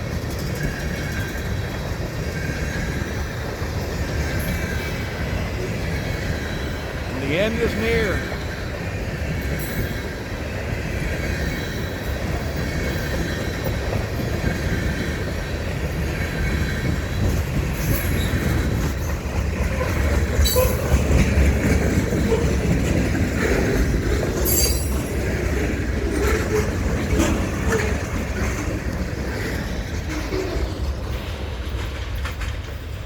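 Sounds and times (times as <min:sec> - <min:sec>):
freight train wheels rumbling: 0:00.0 - 0:33.0
wheel squeal: 0:17.7 - 0:21.2, 0:24.4 - 0:25.4.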